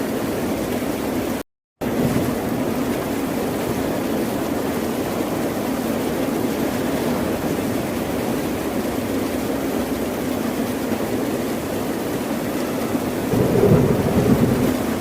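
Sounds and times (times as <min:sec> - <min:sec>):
ocean surf rushing: 0:13.3 - 0:15.0.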